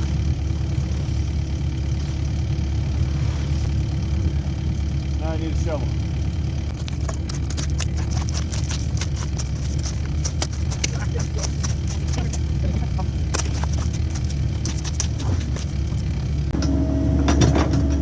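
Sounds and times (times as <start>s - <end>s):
excavator diesel engine running: 0.0s - 18.0s
sharp clicks and knocks: 6.7s - 18.0s.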